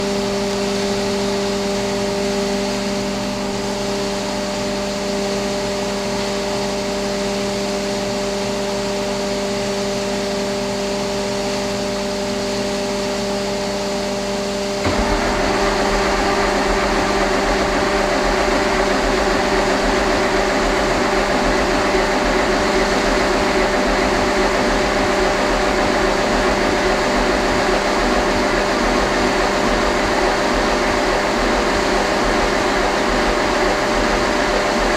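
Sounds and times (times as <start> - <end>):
diesel engine whining: 14.8 - 26.2.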